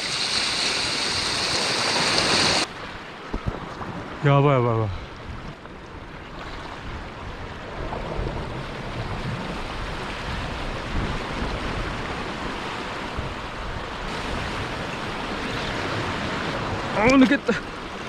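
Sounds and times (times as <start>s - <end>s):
waves on rocky shore: 0.0s - 18.0s
wind on microphone: 4.9s - 17.1s.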